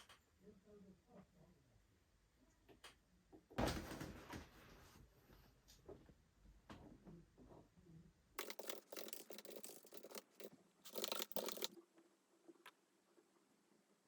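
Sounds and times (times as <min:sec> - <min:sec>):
rustling and scraping: 0:08.4 - 0:11.8.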